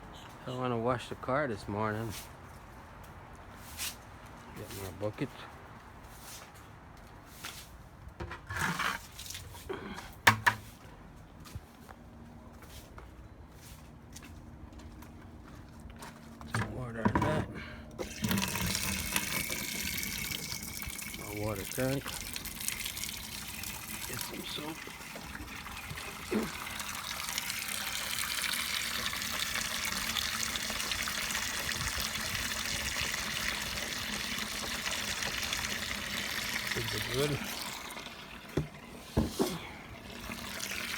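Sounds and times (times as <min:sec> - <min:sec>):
tap water filling a bucket: 0:08.2 - 0:09.4, 0:18.0 - 0:40.9
bucket scraping rustle: 0:08.2 - 0:09.7.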